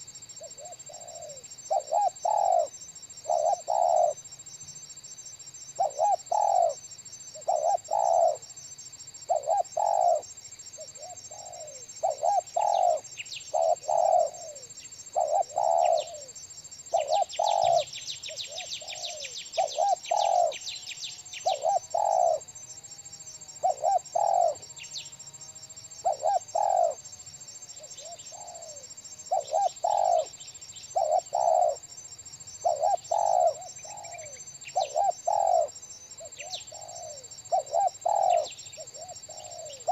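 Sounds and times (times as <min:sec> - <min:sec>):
dove cooing: 0:00.4 - 0:04.2, 0:05.8 - 0:06.8, 0:07.4 - 0:08.4, 0:09.3 - 0:20.6, 0:21.4 - 0:22.5, 0:23.6 - 0:24.7, 0:26.0 - 0:27.1, 0:27.8 - 0:31.9, 0:32.6 - 0:39.9.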